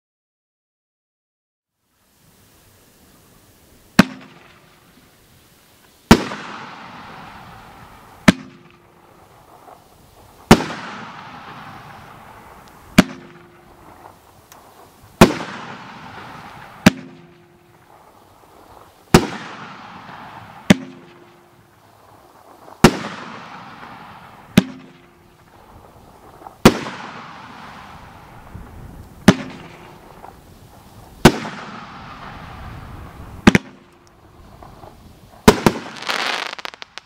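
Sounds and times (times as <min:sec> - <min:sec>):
fireworks crackling: 0:01.9 - 0:37.0
fireworks bangs: 0:03.8 - 0:05.2, 0:06.0 - 0:37.0
hiss of sparks: 0:25.4 - 0:37.0.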